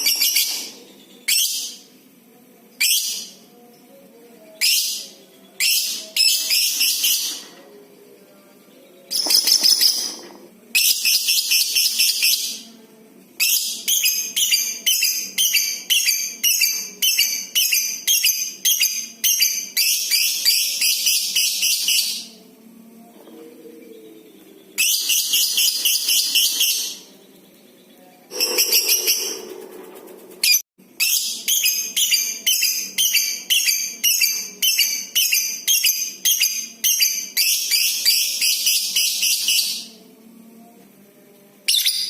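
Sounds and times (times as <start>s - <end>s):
lovebird chattering trill: 28.3s - 29.6s.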